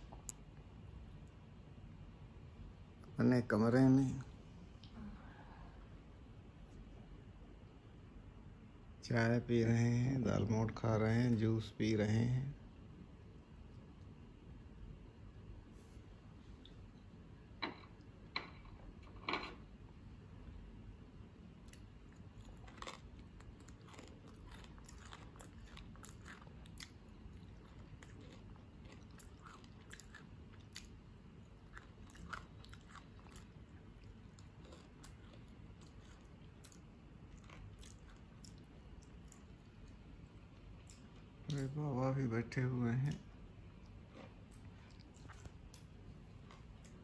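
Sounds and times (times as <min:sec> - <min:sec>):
chewing crunchy snack: 0:21.6 - 0:41.6, 0:43.8 - 0:47.0.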